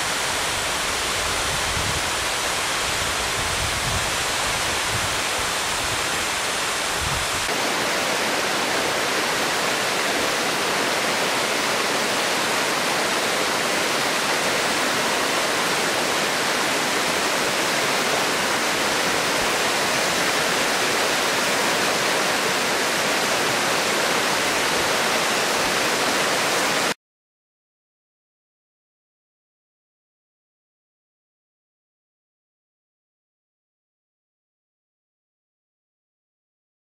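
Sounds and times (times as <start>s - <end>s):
waterfall roaring: 0.0s - 27.0s.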